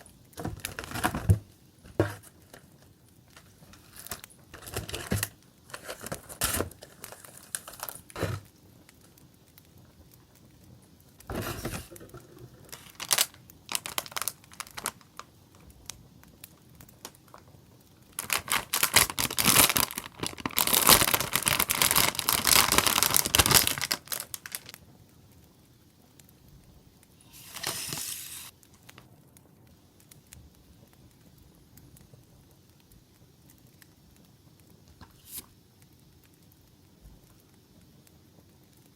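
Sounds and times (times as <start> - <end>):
packaging crinkling and rustling: 0.0 - 8.5, 11.2 - 24.8, 27.2 - 29.1.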